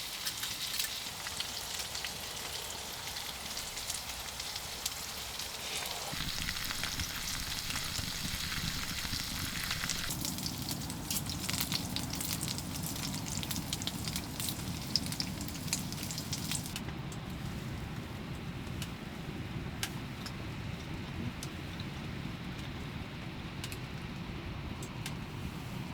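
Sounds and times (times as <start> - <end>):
food sizzling in a pan: 0.0 - 16.8.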